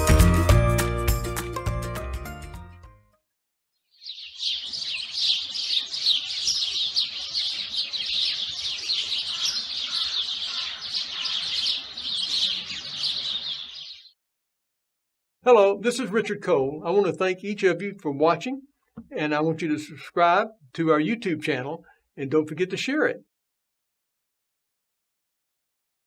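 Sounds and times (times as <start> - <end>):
small songbirds chirping: 3.8 - 14.2.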